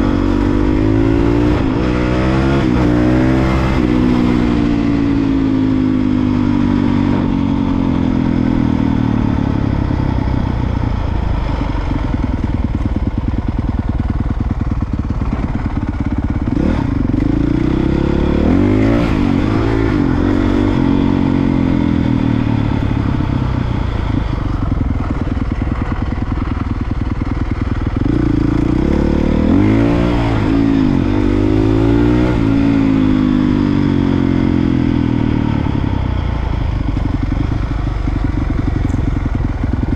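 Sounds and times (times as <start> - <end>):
dirt bike engine revving: 0.0 - 9.6, 15.2 - 35.8.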